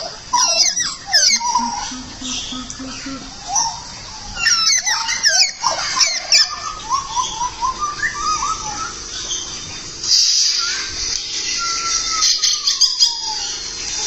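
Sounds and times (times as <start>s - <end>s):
songbird singing: 0.4s - 5.6s
steady high hiss: 1.2s - 3.7s.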